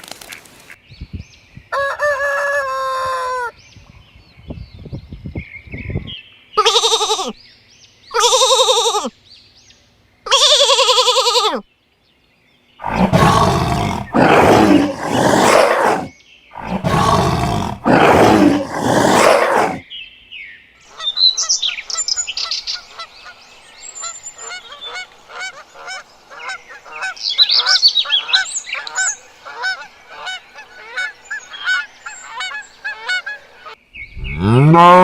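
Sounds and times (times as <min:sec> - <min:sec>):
animal roars: 0:12.8 - 0:19.8, 0:34.2 - 0:35.0.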